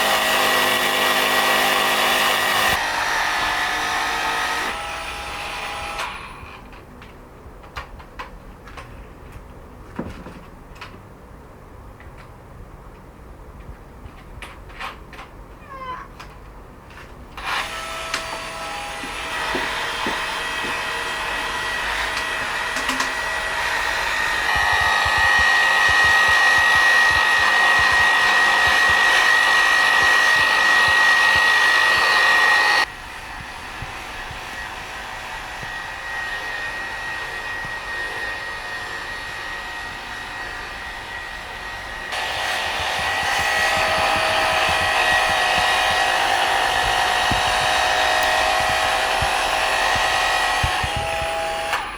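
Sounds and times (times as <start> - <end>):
power tool motor whining: 0.0 - 6.6, 17.4 - 51.9.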